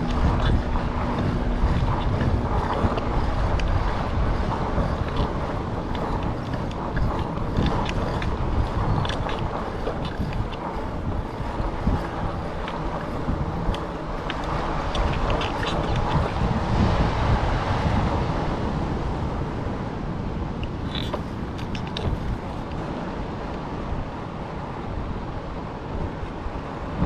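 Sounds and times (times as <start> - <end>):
small clicks and rattles: 0.0 - 16.4, 20.6 - 22.8
wind buffeting microphone: 0.0 - 27.0.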